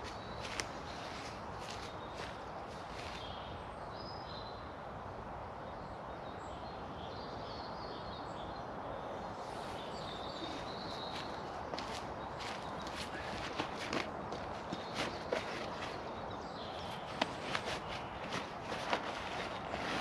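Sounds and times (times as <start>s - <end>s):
footsteps: 0.0s - 3.2s, 10.4s - 16.1s, 16.9s - 20.0s
birds chirping: 0.0s - 4.7s, 5.8s - 20.0s
outdoor background hiss: 0.0s - 20.0s.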